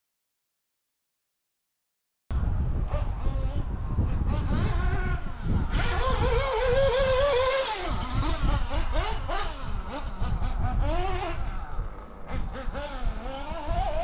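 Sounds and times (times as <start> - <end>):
small engine revving: 2.9 - 14.0.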